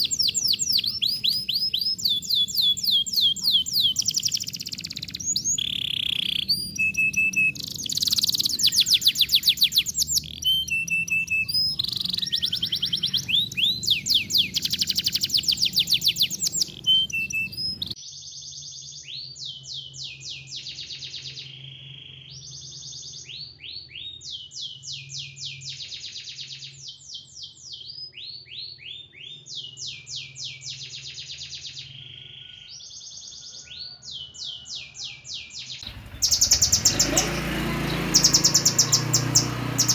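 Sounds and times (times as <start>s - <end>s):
bird whistles: 0.0s - 18.0s, 35.8s - 39.9s
songbird trills: 0.0s - 39.9s.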